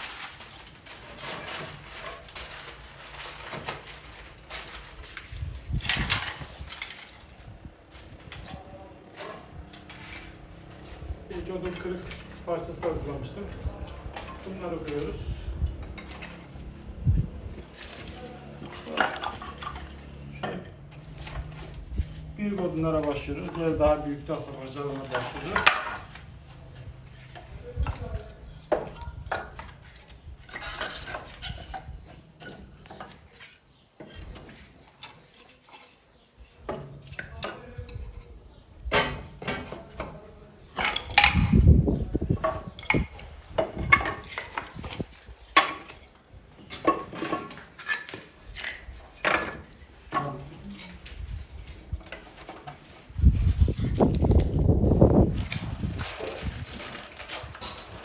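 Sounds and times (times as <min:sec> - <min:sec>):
firewood clattering on cast iron: 0:00.0 - 0:38.2, 0:38.8 - 0:58.0.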